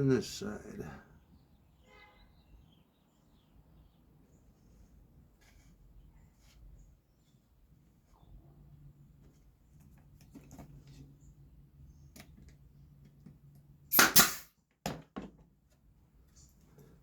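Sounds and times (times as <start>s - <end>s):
loud tool bursts: 13.9s - 14.5s.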